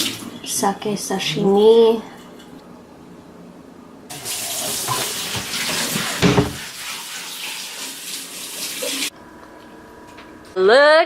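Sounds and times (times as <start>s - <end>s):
tap water running into sink: 4.1s - 9.1s
dull knock: 6.2s - 6.6s.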